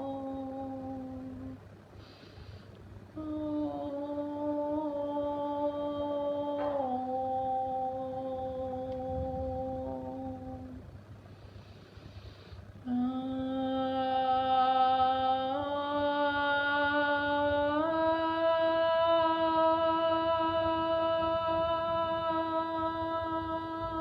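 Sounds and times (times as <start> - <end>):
soft hiss: 0.0 - 24.0
person toning long held notes: 3.2 - 10.9, 12.8 - 24.0.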